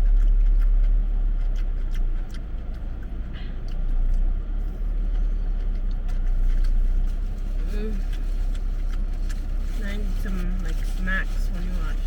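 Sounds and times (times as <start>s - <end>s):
low rumble: 0.0s - 12.0s
people eating clicks and crunches: 0.0s - 12.0s.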